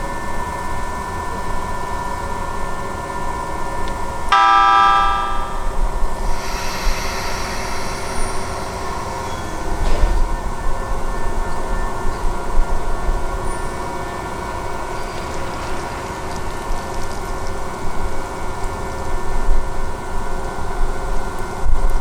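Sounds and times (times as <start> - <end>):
electric train running: 0.0 - 21.6
high-pitched rising tones: 4.3 - 6.0
train horn blast: 4.3 - 6.4.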